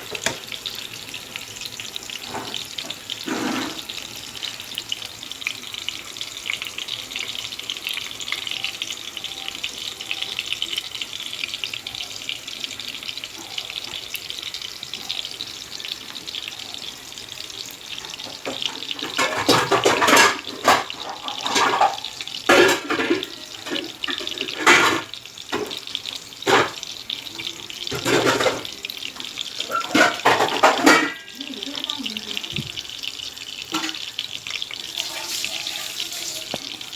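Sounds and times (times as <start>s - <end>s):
food sizzling in oil: 0.0s - 36.9s.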